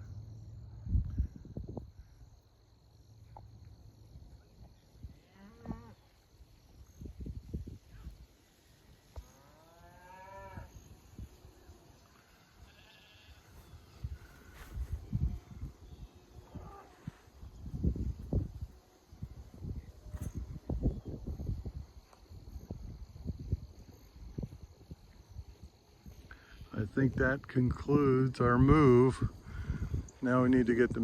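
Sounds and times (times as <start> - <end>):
livestock calling: 9.3 - 14.6
quavering bleat: 12.6 - 13.5.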